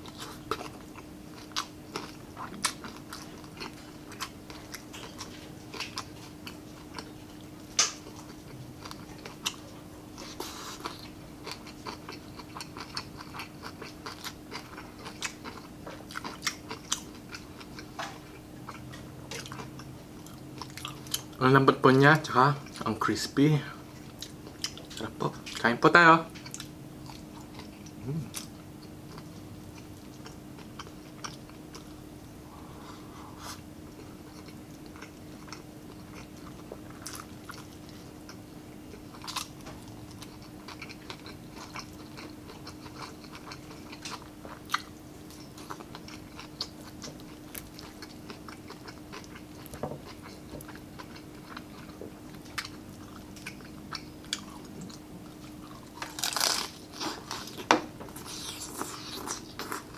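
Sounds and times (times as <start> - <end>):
chewing and smacking: 0.0 - 21.4, 23.9 - 25.7, 26.3 - 32.0, 33.4 - 59.9
crisp crunch of biting: 55.8 - 57.6.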